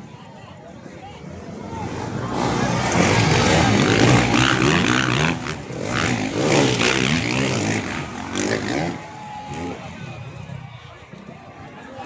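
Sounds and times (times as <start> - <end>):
motorcycle engines revving: 1.2 - 11.8.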